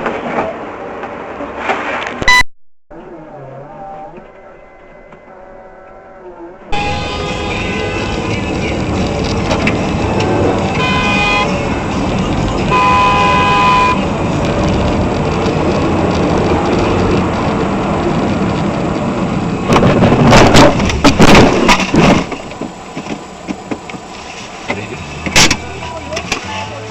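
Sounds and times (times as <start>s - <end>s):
traffic noise: 0.0s - 26.9s
car horn honking: 5.6s - 8.9s, 10.1s - 11.9s, 12.6s - 14.1s
car collision crashing impacts: 19.7s - 22.8s.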